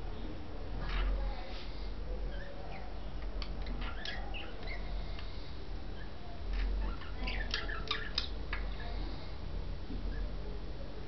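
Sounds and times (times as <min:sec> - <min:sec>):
steady low hum: 0:00.0 - 0:11.0
budgies chirping: 0:02.2 - 0:09.4.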